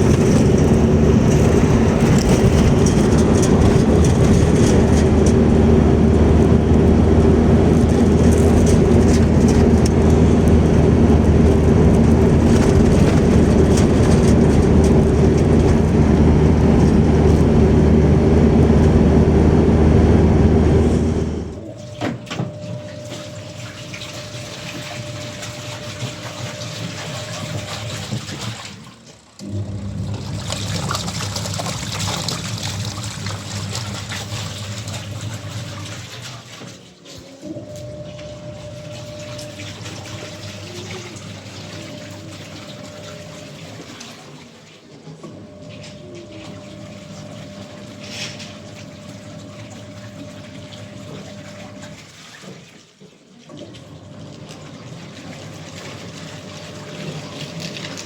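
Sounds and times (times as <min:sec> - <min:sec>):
tractor engine running: 0:00.0 - 0:21.7.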